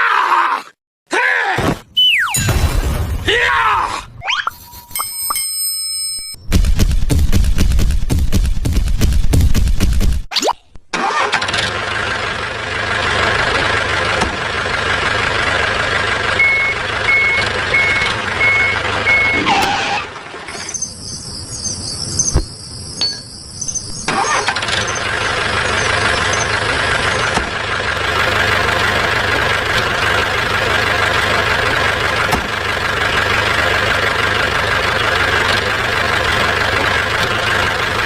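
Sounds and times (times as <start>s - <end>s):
engine running: 11.0s - 20.6s, 24.0s - 38.0s
short beeps: 16.4s - 19.5s.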